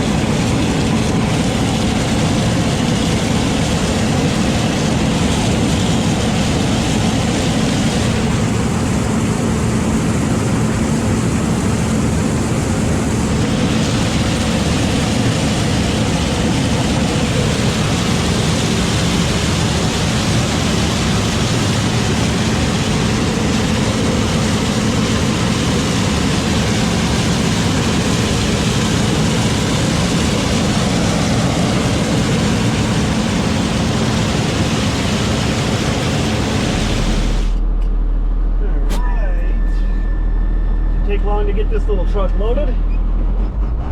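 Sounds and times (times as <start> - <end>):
heavy vehicle engine droning: 0.0 - 43.9.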